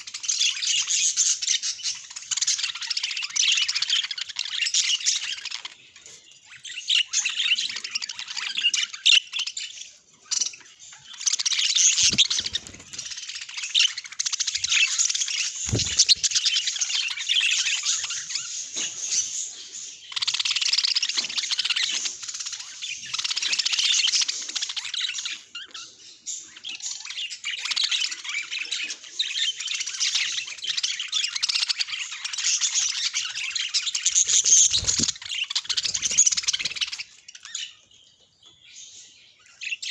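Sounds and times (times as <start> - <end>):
budgerigars chattering and chirping: 0.1 - 39.9.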